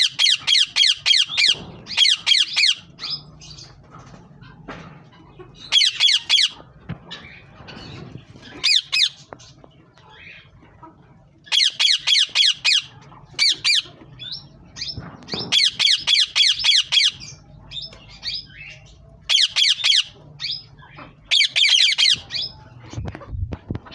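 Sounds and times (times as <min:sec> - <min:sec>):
parrots squawking: 0:00.0 - 0:03.7, 0:05.2 - 0:09.3, 0:11.4 - 0:22.7.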